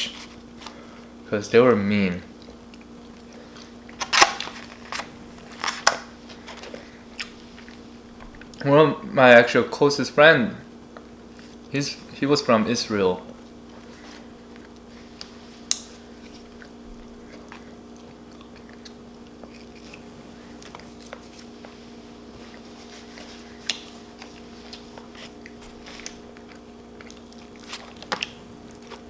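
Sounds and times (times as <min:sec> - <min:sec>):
steady low hum: 0:00.0 - 0:29.0
crunchy chewing and biting of food: 0:02.3 - 0:08.6, 0:13.2 - 0:29.0.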